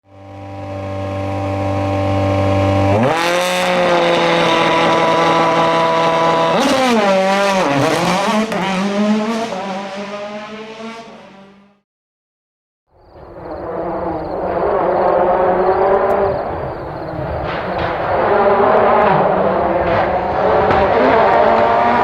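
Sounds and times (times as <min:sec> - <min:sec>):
rally car engine at full throttle: 0:00.0 - 0:11.8, 0:13.5 - 0:22.0.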